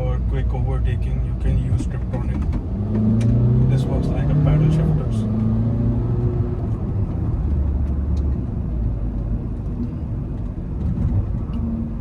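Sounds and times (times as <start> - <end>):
car engine drone: 0.0 - 12.0
road rumble: 0.0 - 12.0.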